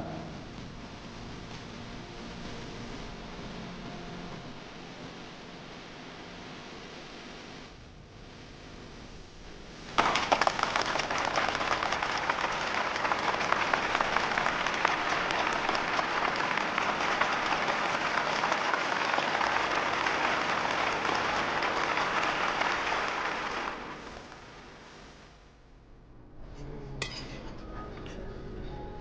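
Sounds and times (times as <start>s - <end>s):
audience applauding: 10.0s - 24.9s.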